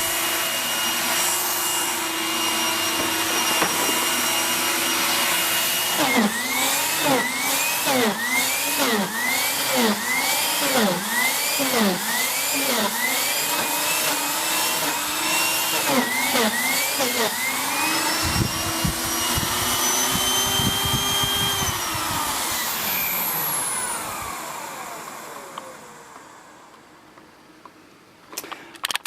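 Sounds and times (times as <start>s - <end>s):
vacuum cleaner motor whine: 0.0s - 27.2s.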